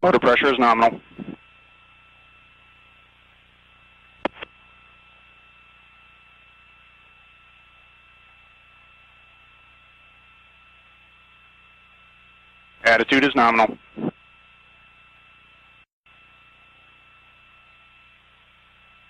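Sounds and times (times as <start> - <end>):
radio hiss: 0.0 - 3.1, 3.8 - 6.2, 12.8 - 14.4
faint high-pitched hum: 0.0 - 19.0.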